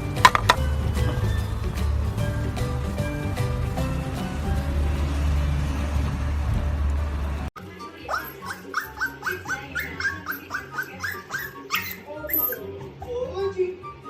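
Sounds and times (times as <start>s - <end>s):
dog whimpering: 8.1s - 12.7s.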